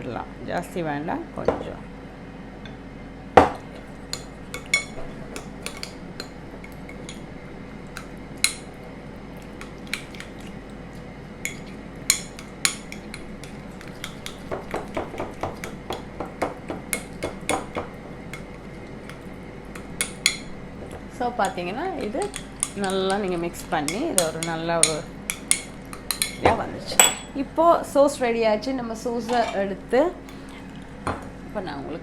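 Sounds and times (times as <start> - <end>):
spoon clinking against a bowl: 4.1 - 8.8, 11.4 - 20.5, 22.2 - 27.3.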